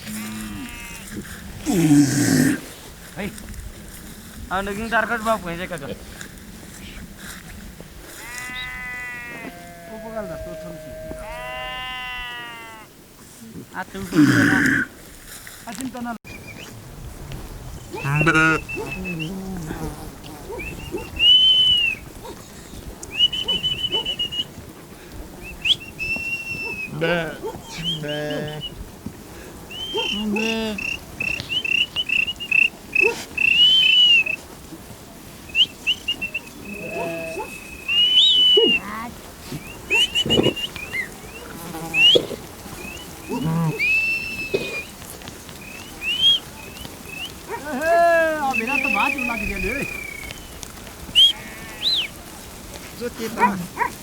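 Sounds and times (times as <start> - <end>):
low animal calls: 0.0 - 2.7, 8.1 - 12.9, 16.4 - 24.6, 25.4 - 28.8, 29.6 - 34.4, 35.6 - 54.0
short rising whistles: 20.6 - 22.0, 30.8 - 34.4, 37.5 - 38.8, 39.6 - 43.0, 43.8 - 44.9, 48.5 - 50.6, 51.2 - 52.1
person whistling high whistles: 21.2 - 22.0, 25.6 - 26.9, 33.4 - 34.4, 37.5 - 38.8, 43.8 - 44.9, 46.0 - 46.4, 51.2 - 52.1
long steady whistle: 33.4 - 34.4.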